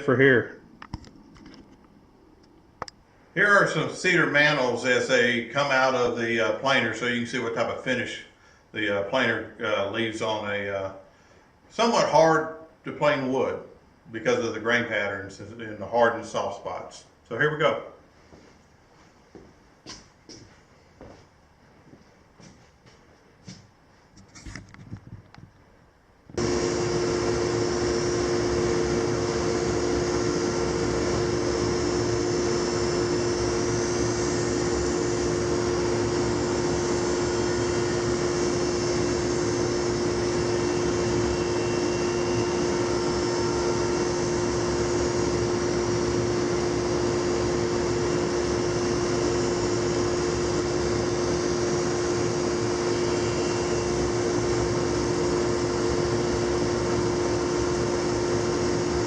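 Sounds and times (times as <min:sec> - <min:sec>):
planer running: 0:26.4 - 0:59.0
wood cutting noise: 0:26.4 - 0:59.0.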